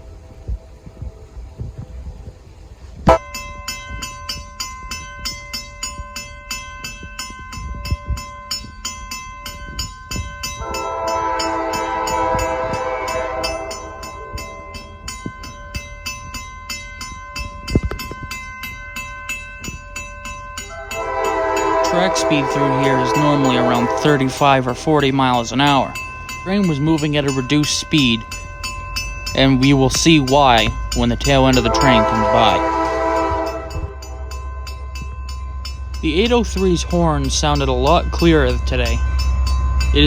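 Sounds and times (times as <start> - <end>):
crossing warning bell ringing: 3.0 - 40.0
train air horn: 10.6 - 14.0, 20.7 - 24.8, 31.5 - 34.3.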